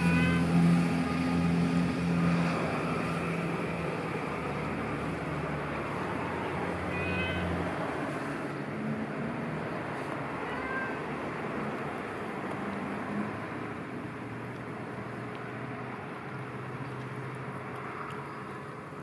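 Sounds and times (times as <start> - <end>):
cat meowing: 0.0 - 0.6, 6.1 - 8.2, 10.4 - 11.2
vehicle engine hum: 0.0 - 19.0.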